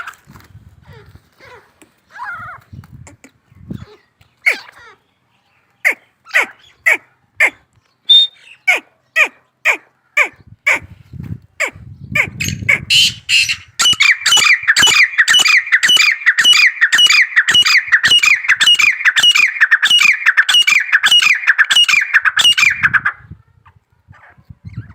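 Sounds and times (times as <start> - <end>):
francolins calling: 11.6 - 23.3.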